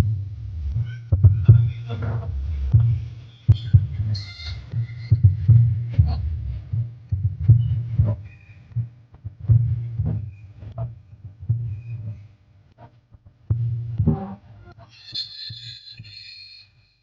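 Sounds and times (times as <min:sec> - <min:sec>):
booming bass music: 0:00.0 - 0:12.2, 0:13.4 - 0:14.6.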